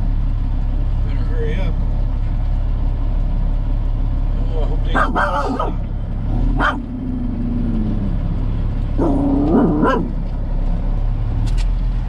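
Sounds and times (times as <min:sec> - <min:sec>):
diesel engine rumble: 0:00.0 - 0:12.0
dog barking: 0:04.9 - 0:05.8, 0:06.6 - 0:06.8, 0:09.0 - 0:10.2
dog whining: 0:09.0 - 0:10.2.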